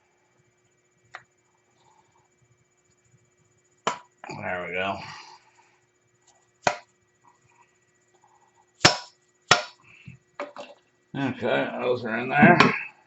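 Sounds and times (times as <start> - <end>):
sharp metal knocks: 8.8 - 9.8.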